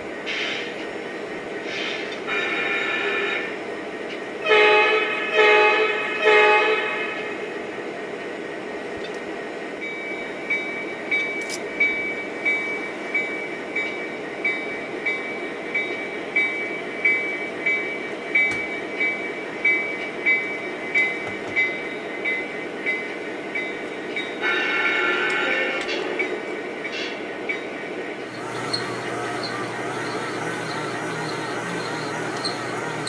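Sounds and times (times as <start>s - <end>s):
model locomotive engine sound: 1.6s - 3.6s, 28.2s - 33.0s
locomotive horn: 2.3s - 3.5s, 4.4s - 7.3s, 24.4s - 26.0s
locomotive bell ringing: 28.2s - 33.0s.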